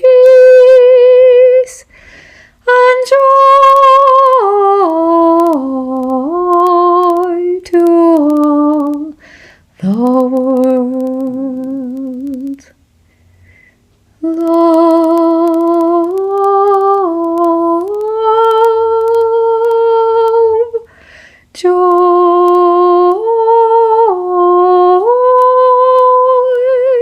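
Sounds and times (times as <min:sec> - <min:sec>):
woman singing long notes: 0:00.0 - 0:02.0, 0:02.6 - 0:09.2, 0:09.8 - 0:12.8, 0:14.2 - 0:20.9, 0:21.6 - 0:27.0
singer breathing: 0:01.9 - 0:02.6, 0:09.2 - 0:09.7, 0:13.0 - 0:13.8, 0:20.9 - 0:21.5.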